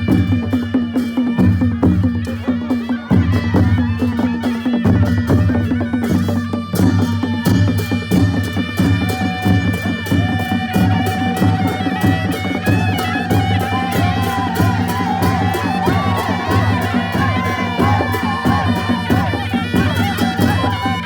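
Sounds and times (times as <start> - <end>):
drums beating: 0.0 - 21.0
shehnai melody: 0.0 - 21.0
cymbals clashing: 4.8 - 21.0.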